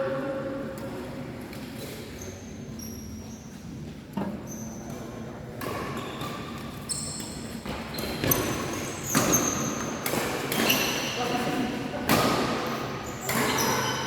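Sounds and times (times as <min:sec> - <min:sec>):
shoes squeaking on court floor: 0:01.8 - 0:11.8, 0:12.6 - 0:14.0.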